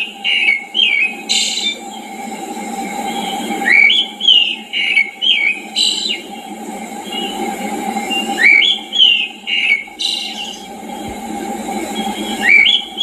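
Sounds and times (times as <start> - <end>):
low rushing noise: 0.0 - 13.0
songbird whistling slurred notes: 3.1 - 6.2, 8.1 - 10.7, 11.9 - 13.0.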